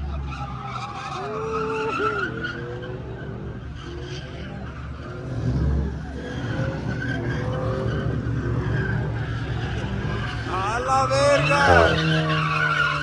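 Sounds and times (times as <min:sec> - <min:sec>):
tyres squealing: 0:11.1 - 0:13.0.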